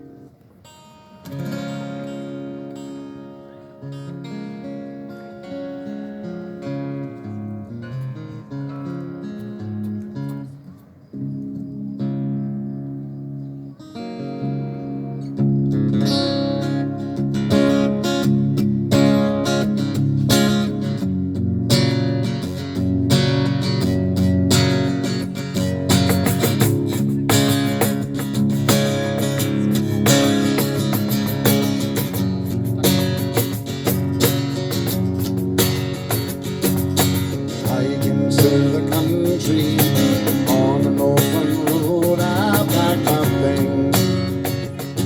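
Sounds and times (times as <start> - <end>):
acoustic band strumming chords: 0.0 - 11.2, 14.0 - 45.0
cajon beat: 17.4 - 45.0.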